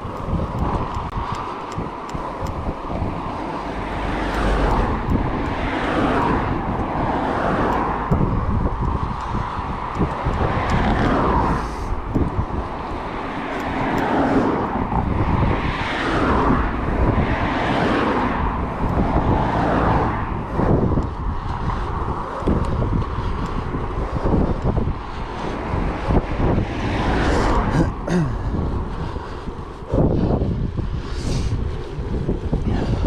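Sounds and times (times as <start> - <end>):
bike tyres rolling on gravel: 0.0 - 26.6
wind buffeting microphone: 0.0 - 33.0.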